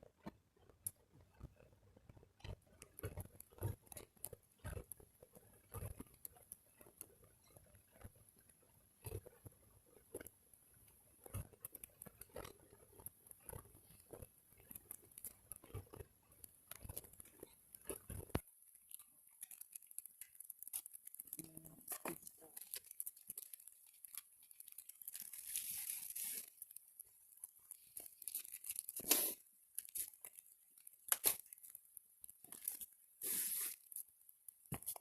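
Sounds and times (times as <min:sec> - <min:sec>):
wood fire crackling: 0:11.6 - 0:35.0
rustling crumpling: 0:16.9 - 0:35.0.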